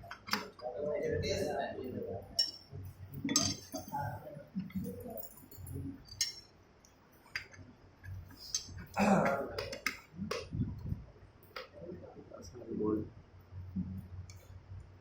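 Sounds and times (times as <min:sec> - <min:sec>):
metal tools clinking: 0:02.3 - 0:04.1, 0:04.7 - 0:06.5.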